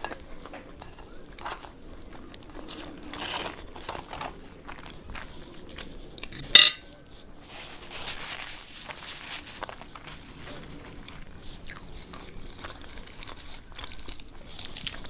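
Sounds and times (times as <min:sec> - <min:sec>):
cutlery scraping on a plate: 0:00.0 - 0:04.8, 0:06.2 - 0:07.0
sharp cutlery clink: 0:06.3 - 0:06.9.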